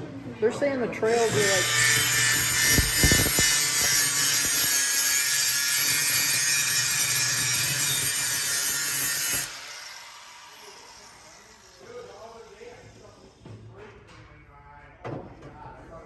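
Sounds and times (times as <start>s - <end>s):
power tool grinding steel: 1.0s - 12.6s.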